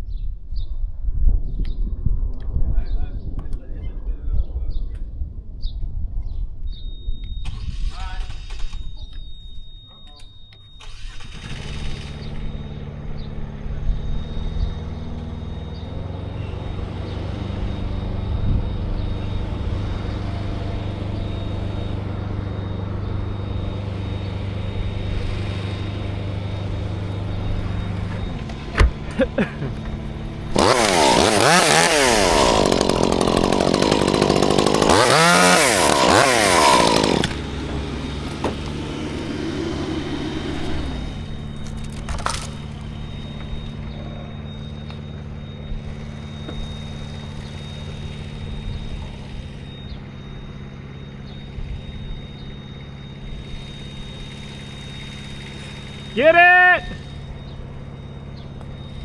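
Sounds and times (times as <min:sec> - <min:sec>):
chainsaw revving and cutting: 0:10.8 - 0:12.6, 0:16.0 - 0:43.2, 0:45.9 - 0:49.7, 0:53.4 - 0:56.3
engine running: 0:10.8 - 0:59.0.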